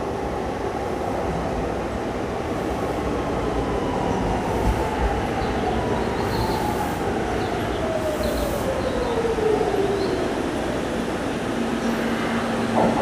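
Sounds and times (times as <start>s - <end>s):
rumble of train cars: 0.0s - 13.0s.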